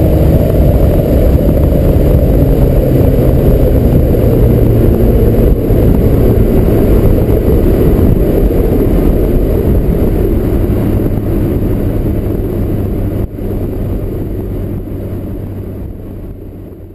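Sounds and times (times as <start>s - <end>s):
turbocharged car engine running: 0.0s - 16.9s.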